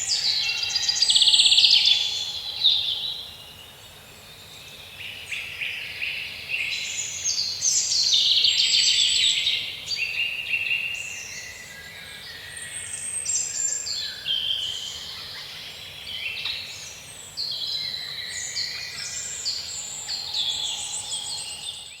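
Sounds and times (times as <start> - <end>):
birds chirping and trilling: 17.6 - 22.0.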